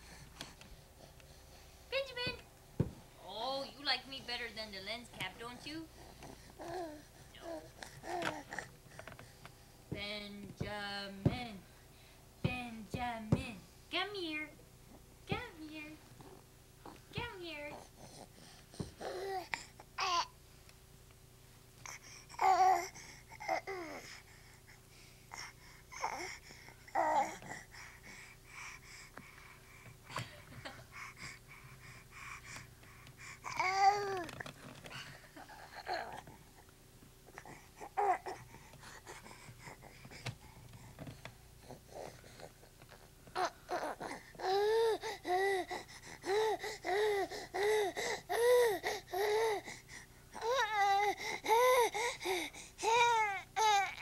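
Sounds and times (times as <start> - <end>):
baby babbling: 33.4 - 34.4.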